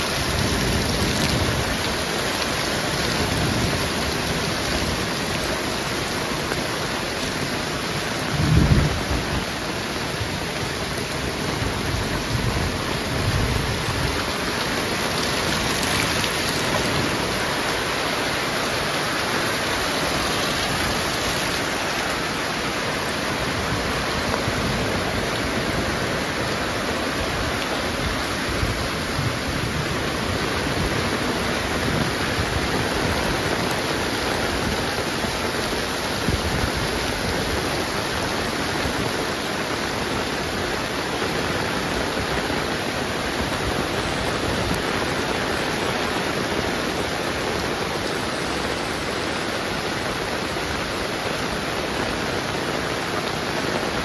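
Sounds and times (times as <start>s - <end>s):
heavy rain falling: 0.0s - 54.0s
thunder rumble: 8.2s - 9.5s.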